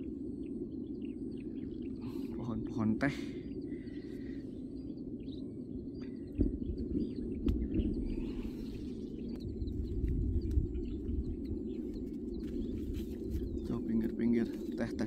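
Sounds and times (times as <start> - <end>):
low rumble: 0.0 - 15.0
small birds chirping: 0.0 - 15.0
low thumps: 6.3 - 8.6.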